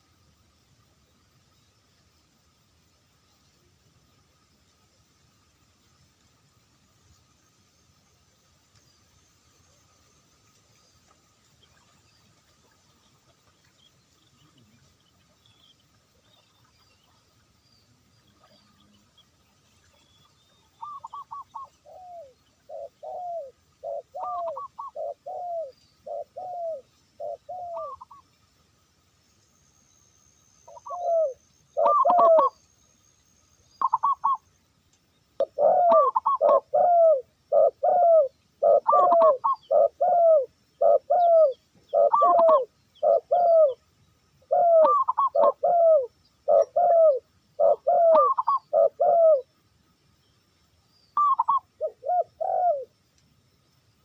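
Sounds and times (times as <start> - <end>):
dove cooing: 20.8 - 28.2, 30.7 - 32.6, 33.8 - 34.4, 35.4 - 43.8, 44.5 - 49.5, 51.2 - 52.9.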